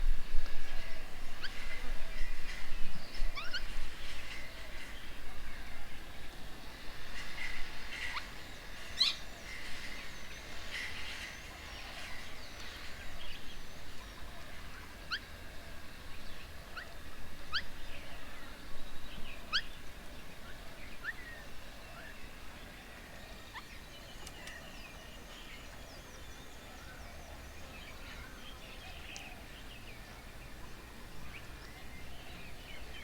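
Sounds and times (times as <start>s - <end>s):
birds chirping: 16.2s - 33.0s.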